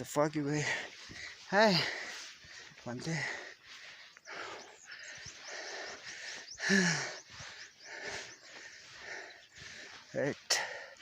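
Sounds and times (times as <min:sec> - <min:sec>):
person breathing heavily: 0:00.4 - 0:11.0.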